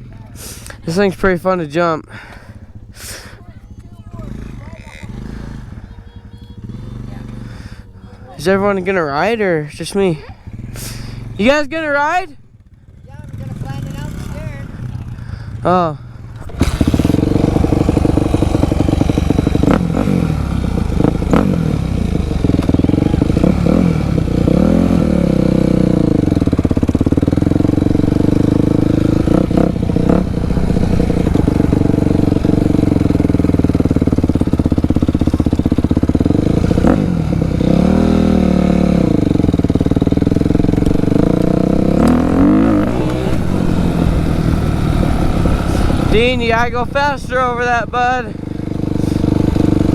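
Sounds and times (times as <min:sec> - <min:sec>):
dirt bike engine revving: 0:00.0 - 0:12.0, 0:12.6 - 0:49.9.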